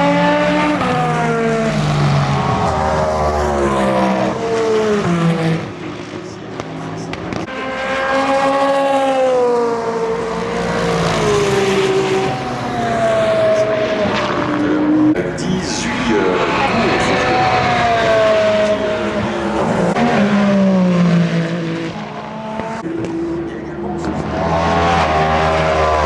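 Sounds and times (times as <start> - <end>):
race cars passing at speed: 0.0 - 26.0.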